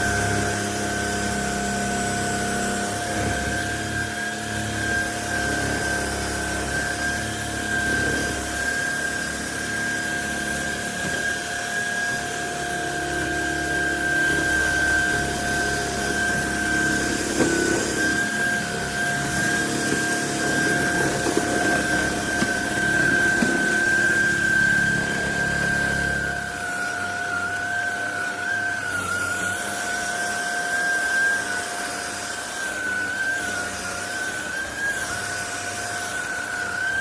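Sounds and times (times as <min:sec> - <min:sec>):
vacuum cleaner motor whine: 0:00.0 - 0:37.0.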